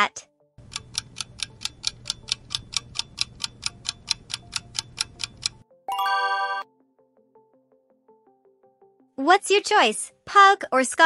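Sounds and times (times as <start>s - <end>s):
clock-style ticking: 0.6s - 5.6s
bright multi-tone chime: 5.9s - 6.6s.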